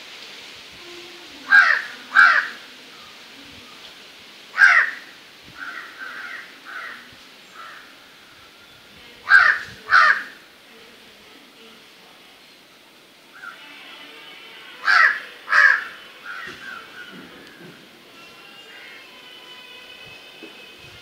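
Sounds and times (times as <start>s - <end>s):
bird cawing: 1.5s - 2.6s, 4.6s - 8.0s, 9.3s - 10.4s, 13.3s - 13.6s, 14.8s - 17.8s, 18.6s - 19.1s.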